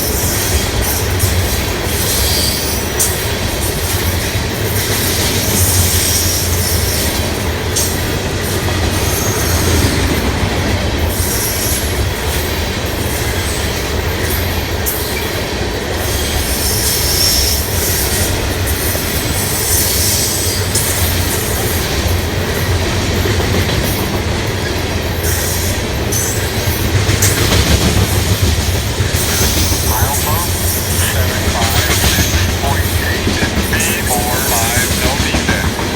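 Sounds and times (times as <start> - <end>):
freight train rolling past: 21.2 - 35.9.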